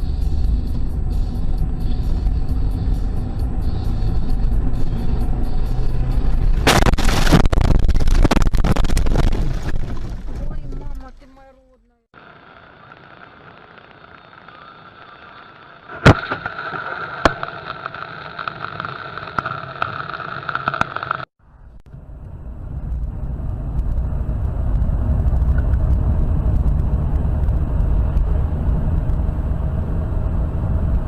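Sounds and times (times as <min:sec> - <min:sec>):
car engine and road rumble: 0:00.0 - 0:31.0
car crash bang: 0:06.6 - 0:10.4.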